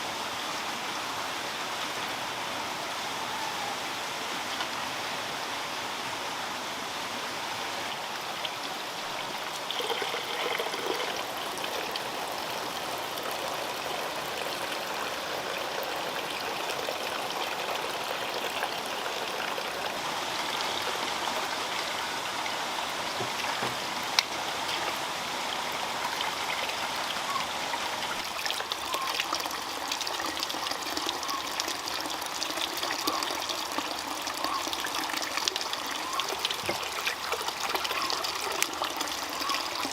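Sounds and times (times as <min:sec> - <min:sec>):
water running: 0:07.8 - 0:39.9.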